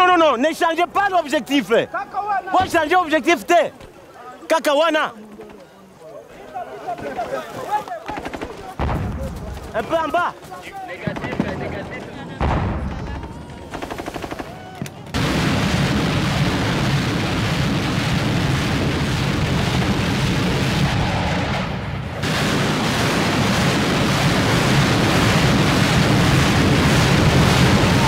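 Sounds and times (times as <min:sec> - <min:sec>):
explosions: 0:08.8 - 0:09.9, 0:11.2 - 0:13.5, 0:15.1 - 0:28.0
rapid gunfire: 0:13.7 - 0:14.6, 0:22.2 - 0:28.0.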